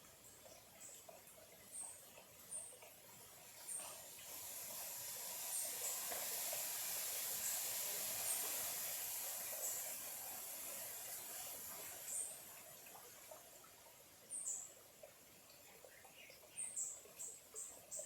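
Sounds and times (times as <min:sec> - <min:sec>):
stream water running: 0:00.0 - 0:18.0.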